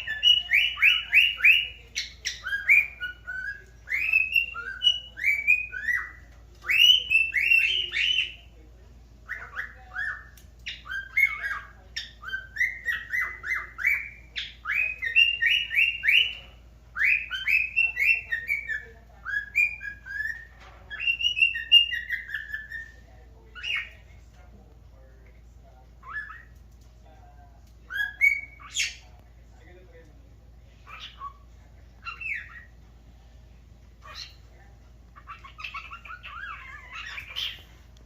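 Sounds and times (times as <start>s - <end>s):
cockatiel whistling: 0.0s - 8.4s, 9.2s - 23.9s, 27.9s - 29.0s, 32.0s - 32.7s.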